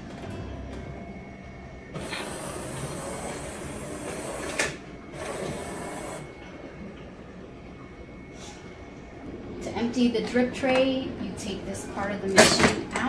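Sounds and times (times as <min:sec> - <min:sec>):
coffee machine hissing: 0:01.9 - 0:06.6.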